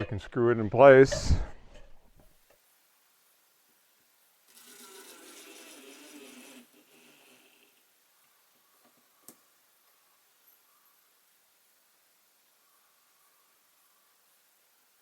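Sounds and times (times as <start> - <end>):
power drill driving a screw: 4.5 - 7.8.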